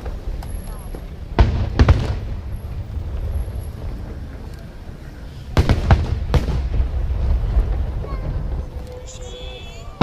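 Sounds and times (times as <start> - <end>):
fireworks booming: 0.0 - 4.5, 5.5 - 10.0
low rumble: 0.0 - 10.0.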